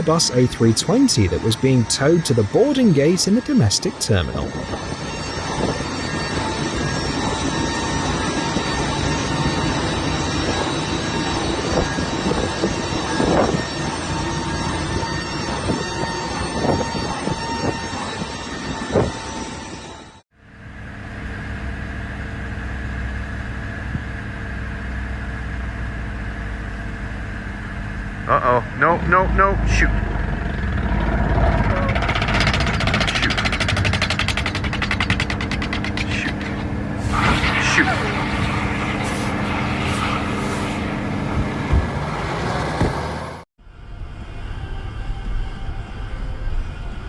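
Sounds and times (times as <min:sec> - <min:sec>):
jet engine roar: 0:00.0 - 0:12.9, 0:35.6 - 0:43.4
engine drone with high whine: 0:03.9 - 0:19.7, 0:20.4 - 0:47.0.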